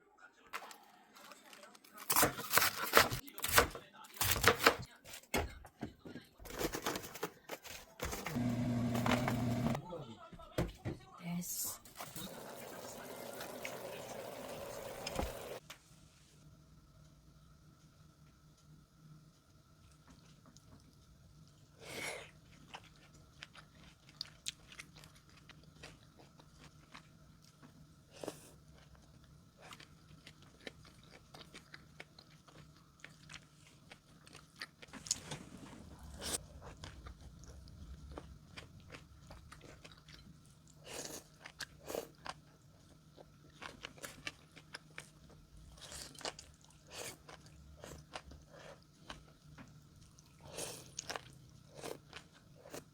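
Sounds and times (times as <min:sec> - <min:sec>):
chewing with crisp crunches: 0:19.8 - 0:52.9.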